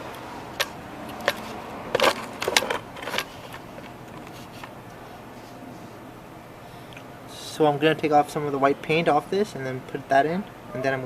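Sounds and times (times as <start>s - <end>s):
low background hum: 0.0s - 11.0s
small tools clattering: 0.6s - 4.7s.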